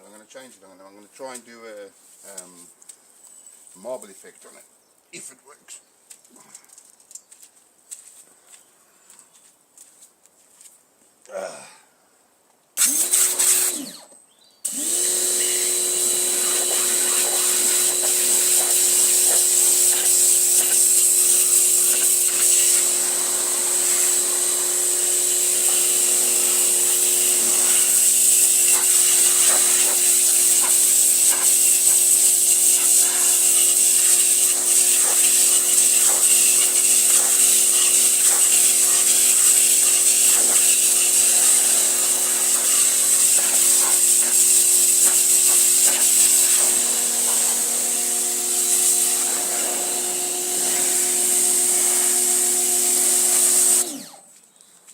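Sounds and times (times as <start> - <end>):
water jet hissing: 12.8 - 14.0, 14.7 - 54.0
pressure washer motor hum: 12.8 - 14.1, 14.7 - 54.2.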